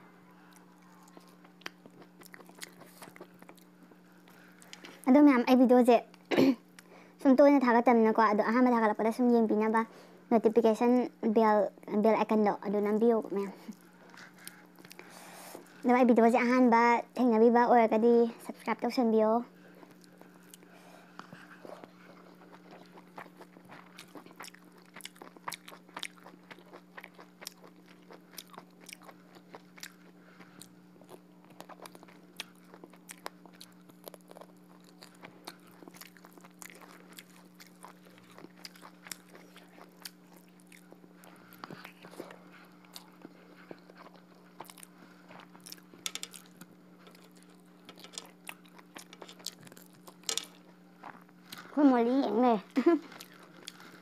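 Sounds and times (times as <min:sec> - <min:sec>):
low steady hum: 0:00.0 - 0:54.0
person chewing food: 0:00.4 - 0:05.0, 0:13.7 - 0:15.8, 0:19.7 - 0:51.8, 0:52.7 - 0:54.0.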